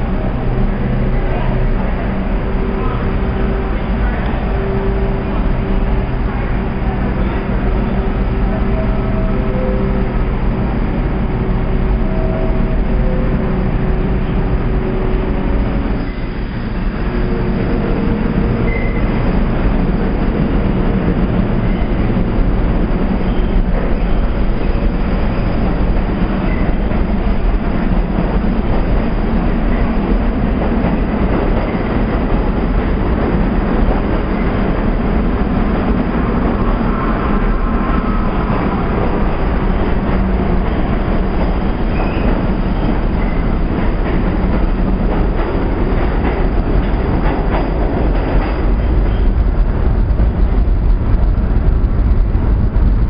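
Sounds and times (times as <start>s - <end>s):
subway wheels rumbling on rails: 0.0s - 53.0s
clickety-clack over rail joints: 14.6s - 53.0s.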